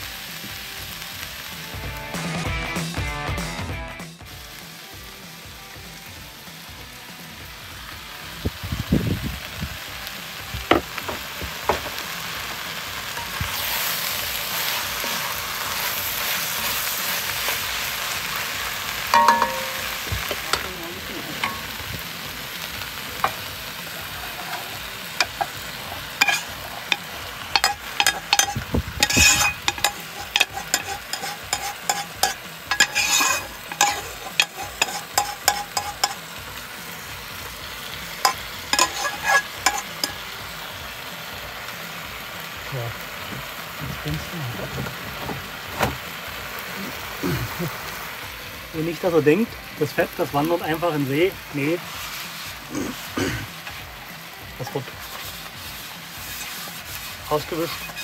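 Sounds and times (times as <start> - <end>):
vegetables sizzling in a pot: 0.0 - 58.0
metal ladle scraping a pot: 24.3 - 36.3, 38.2 - 40.2, 54.6 - 58.0.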